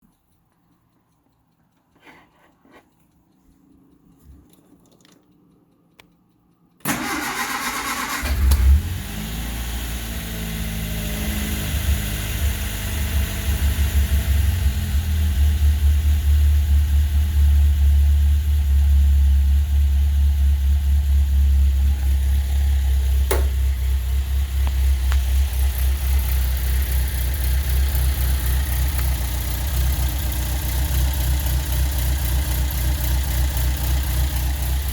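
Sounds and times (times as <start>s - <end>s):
starter motor cranking: 6.8s - 9.0s
car engine idling: 6.9s - 34.9s.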